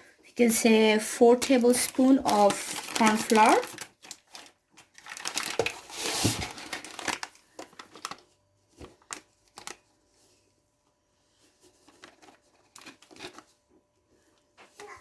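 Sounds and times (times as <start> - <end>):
bag crinkling and rustling: 1.4 - 10.4, 11.4 - 13.8.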